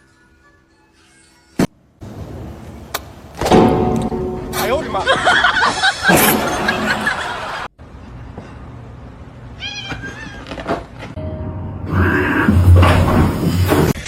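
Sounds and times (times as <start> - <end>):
cat meowing: 9.6 - 10.5.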